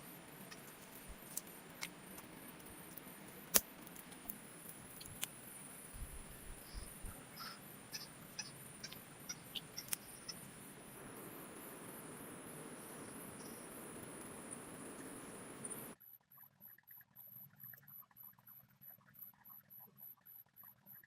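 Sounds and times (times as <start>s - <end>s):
small clicks and ticks: 0.0s - 10.5s
insects chirping in pulsing trill: 0.0s - 21.0s.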